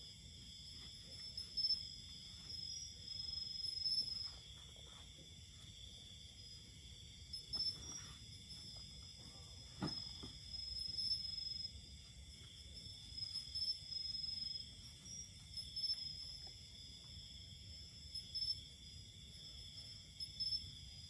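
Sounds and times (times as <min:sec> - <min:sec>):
insect trills: 0:00.0 - 0:21.0
insects chirring: 0:00.0 - 0:21.0
knock: 0:09.8 - 0:10.4.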